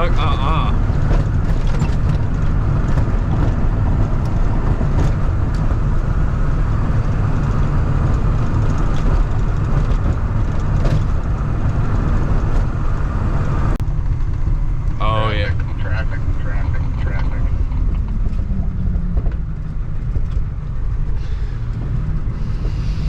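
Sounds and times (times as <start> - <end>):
engine and tyre drone: 0.0 - 23.0
clicks and rattles: 0.8 - 5.8.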